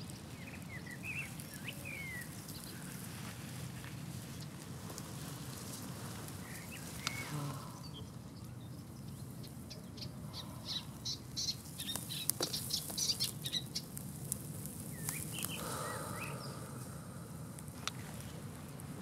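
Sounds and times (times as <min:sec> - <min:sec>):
birds chirping: 0:00.0 - 0:03.0, 0:06.4 - 0:14.0, 0:14.8 - 0:17.6.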